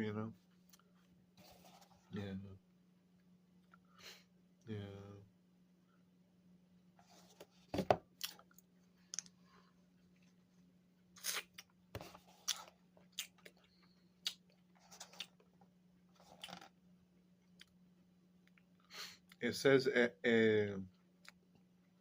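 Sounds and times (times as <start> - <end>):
chewing frozen fruit bar: 8.2 - 9.4, 12.4 - 16.8.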